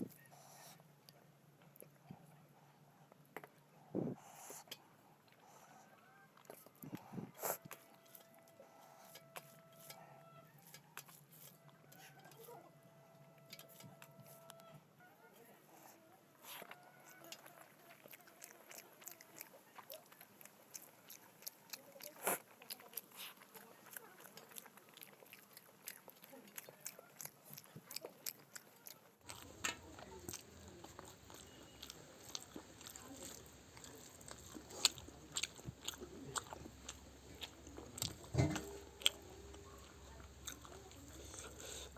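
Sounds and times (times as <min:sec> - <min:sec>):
low background hum: 0:00.0 - 0:41.9
wet chewing clicks and smacks: 0:16.5 - 0:41.9
faint steady hum: 0:29.2 - 0:41.9.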